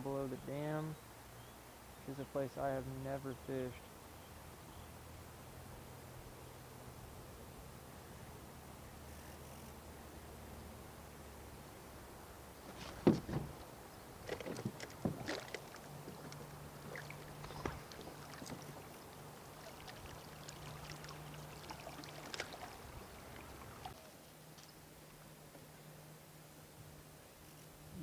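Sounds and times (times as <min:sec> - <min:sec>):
fishing gear knocking on boat hull: 0:13.0 - 0:13.6.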